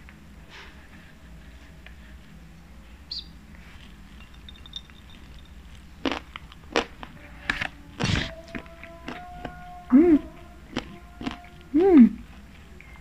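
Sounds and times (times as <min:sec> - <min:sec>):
wet mouth smacks chewing: 0:10.7 - 0:11.5.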